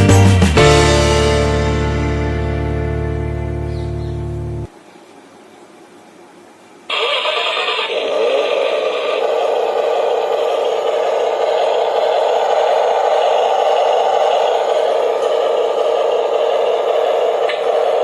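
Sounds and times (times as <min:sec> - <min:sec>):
music: 0:00.0 - 0:04.7
toy truck electric motor whirring: 0:06.9 - 0:18.0.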